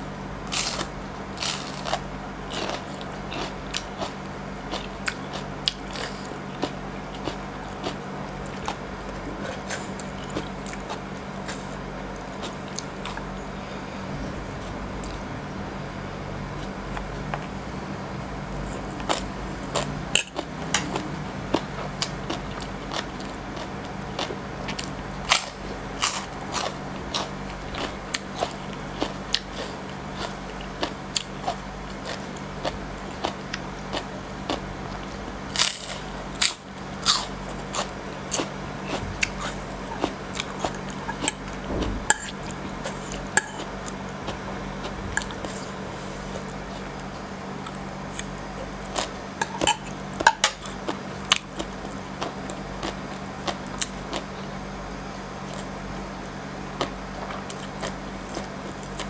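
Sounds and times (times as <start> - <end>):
steady low hum: 0.0 - 59.0
crisp chewing crunches: 0.4 - 13.4, 18.5 - 54.7.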